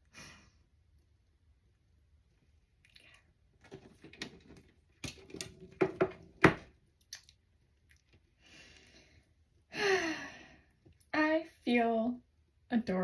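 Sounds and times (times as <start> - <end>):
objects knocked and set down: 3.6 - 6.7.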